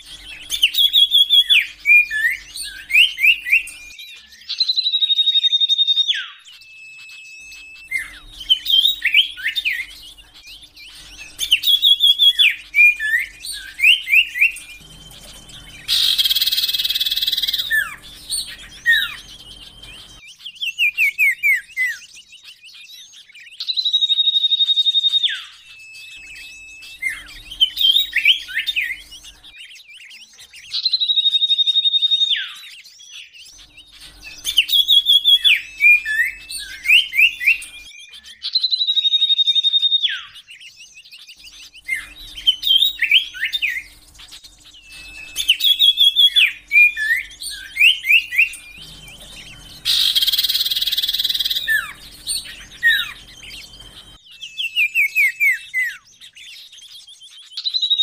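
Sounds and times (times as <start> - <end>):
bird song whistles and trills: 0.0 - 58.0.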